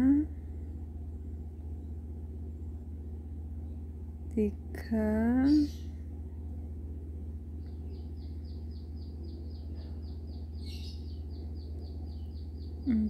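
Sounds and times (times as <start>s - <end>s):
low steady hum: 0.0s - 13.0s
bird chirping: 5.4s - 6.0s, 7.6s - 13.0s.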